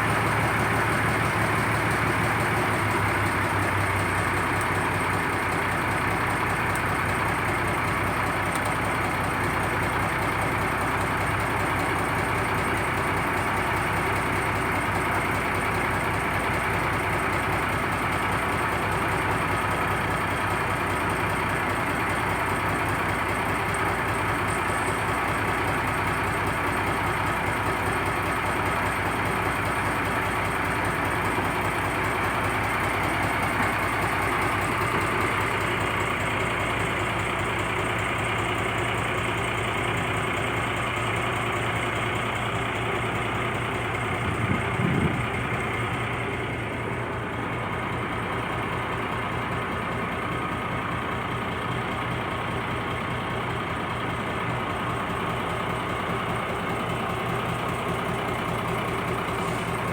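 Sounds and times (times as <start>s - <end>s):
boat engine running: 40.8s - 47.5s.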